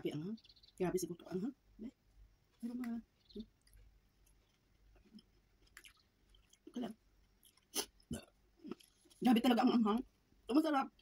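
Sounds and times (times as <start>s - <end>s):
person chewing soft food: 3.3s - 9.2s.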